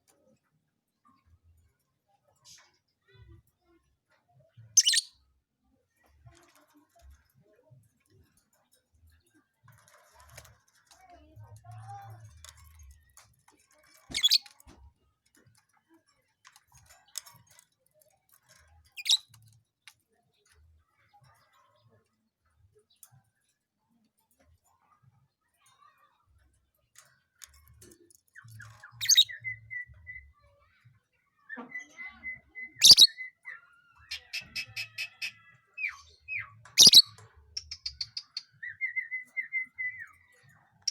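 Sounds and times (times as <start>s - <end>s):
lovebird high-pitched calls: 4.8s - 5.1s, 14.1s - 14.4s, 19.0s - 19.3s, 29.0s - 30.2s, 31.7s - 40.2s.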